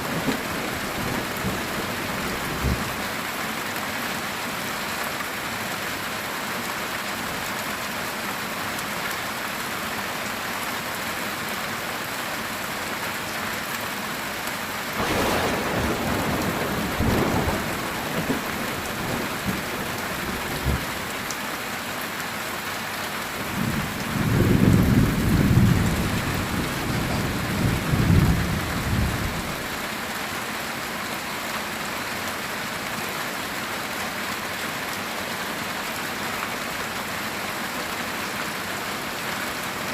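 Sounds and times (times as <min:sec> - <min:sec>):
thunder rumbling: 0:00.0 - 0:03.0, 0:15.0 - 0:21.1, 0:23.5 - 0:29.6
heavy rain on a tin roof: 0:00.0 - 0:39.9.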